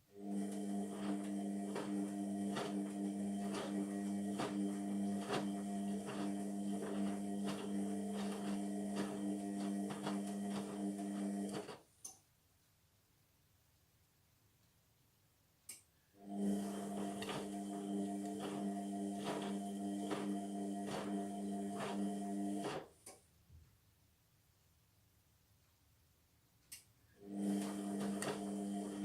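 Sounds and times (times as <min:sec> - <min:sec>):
washing machine motor hum: 0:00.1 - 0:11.8, 0:16.2 - 0:22.9, 0:27.2 - 0:29.0.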